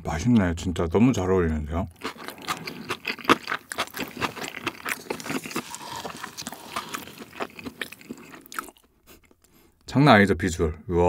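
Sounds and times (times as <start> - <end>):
wet sticky chewing: 1.9 - 9.6.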